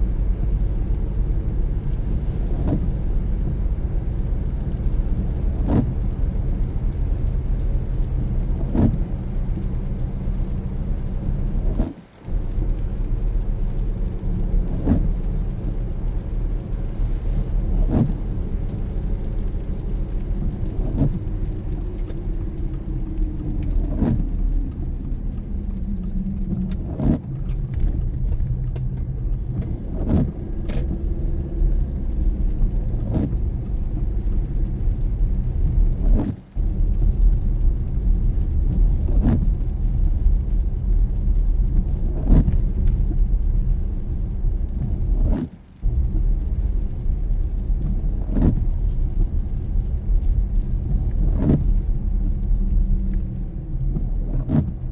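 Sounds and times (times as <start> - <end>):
engine and road drone: 0.0 - 54.9
windshield wipers sweeping: 0.3 - 54.9.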